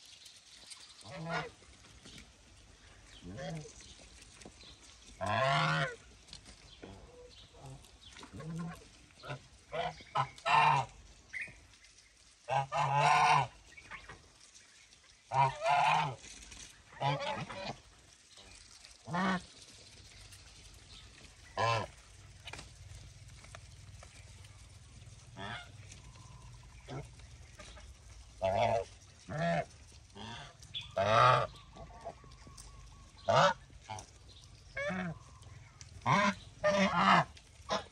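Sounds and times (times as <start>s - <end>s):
geese honking: 1.0s - 1.6s, 5.2s - 6.0s, 6.8s - 11.6s, 12.4s - 14.5s, 15.1s - 20.0s, 20.9s - 22.6s, 24.0s - 37.9s.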